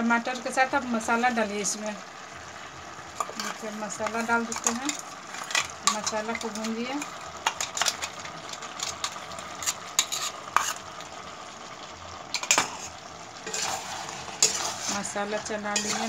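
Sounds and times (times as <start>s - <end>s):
food sizzling in a pan: 0.0s - 16.0s
metal spatula scraping a pan: 3.2s - 8.2s, 8.8s - 10.9s, 12.4s - 16.0s.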